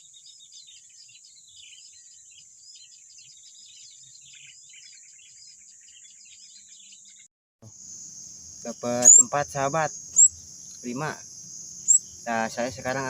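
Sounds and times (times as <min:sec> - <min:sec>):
small birds chirping: 0:00.0 - 0:13.0
high-pitched insect drone: 0:07.7 - 0:13.0.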